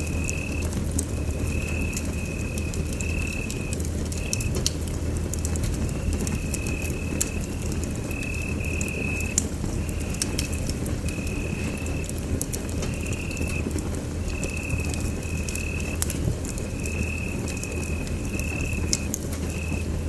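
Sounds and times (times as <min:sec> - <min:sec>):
fire crackling and popping: 0:00.0 - 0:20.0
fire rumbling: 0:00.0 - 0:20.0.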